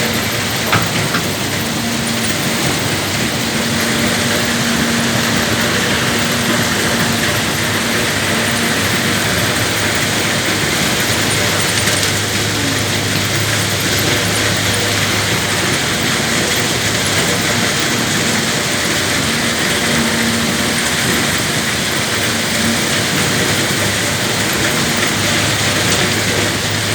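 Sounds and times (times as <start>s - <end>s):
diesel engine running: 0.0s - 26.9s.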